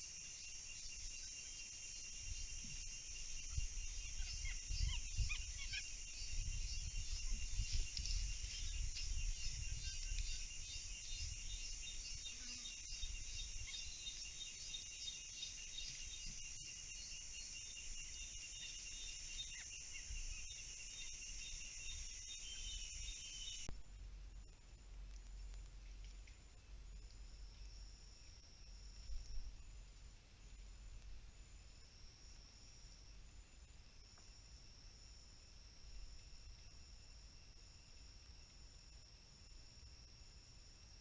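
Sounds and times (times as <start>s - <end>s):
insect chorus trilling: 0.0s - 23.7s.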